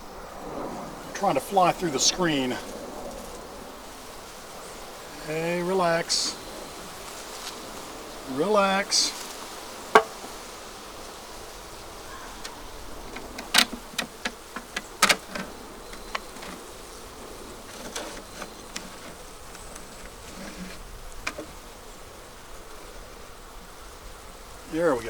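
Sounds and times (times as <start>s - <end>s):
honeybees buzzing: 0.0s - 25.0s
sharp clicks and knocks: 10.0s - 10.4s, 12.4s - 16.6s.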